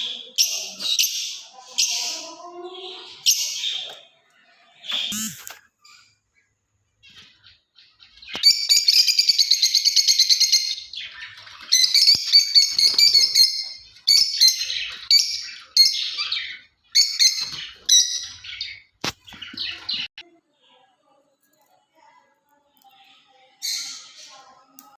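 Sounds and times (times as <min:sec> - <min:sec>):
lovebirds chirping shrilly: 0:04.8 - 0:06.0, 0:08.3 - 0:20.1
sharp click: 0:05.1 - 0:05.6.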